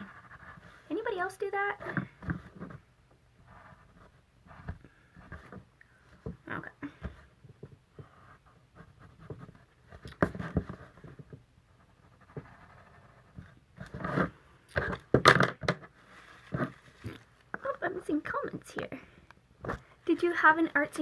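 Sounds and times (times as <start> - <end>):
paper scraping and rustling: 15.8 - 17.4.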